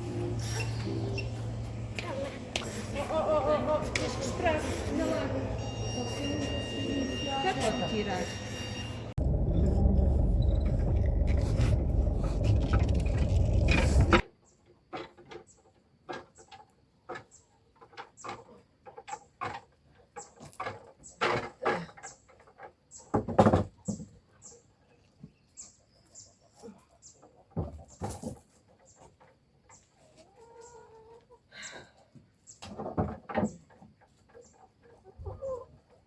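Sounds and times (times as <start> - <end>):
loud steady rumbling: 9.2 - 14.2.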